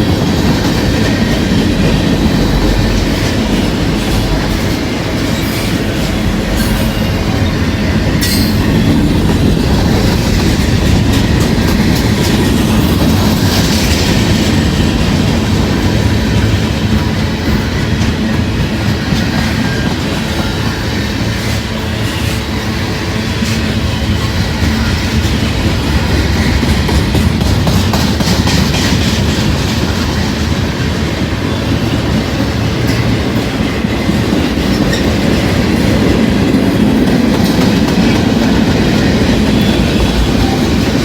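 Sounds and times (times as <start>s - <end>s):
freight train wheels rumbling: 0.0s - 41.0s.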